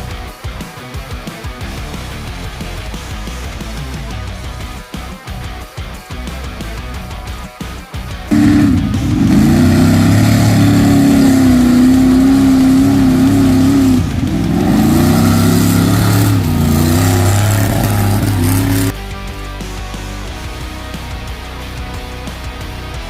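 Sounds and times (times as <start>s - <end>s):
truck engine revving high: 8.3s - 18.9s.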